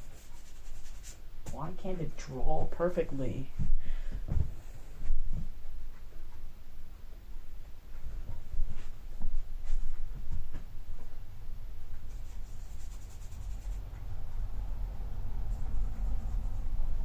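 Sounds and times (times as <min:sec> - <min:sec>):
brush strokes painting a toy: 0:00.0 - 0:02.9, 0:11.9 - 0:14.0.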